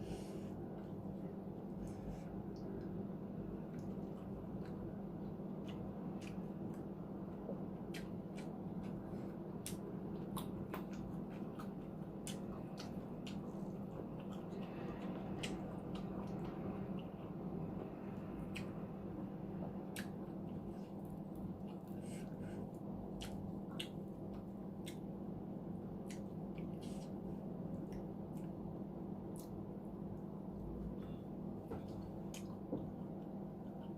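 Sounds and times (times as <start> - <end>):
steady low hum: 0.0 - 33.9
wet chewing mouth clicks: 7.8 - 8.6, 9.6 - 17.1, 23.2 - 25.1.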